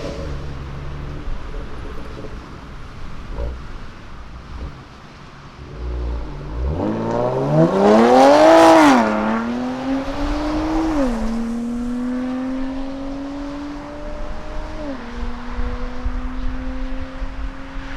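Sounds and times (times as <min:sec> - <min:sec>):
car accelerating hard past: 0:05.6 - 0:17.9.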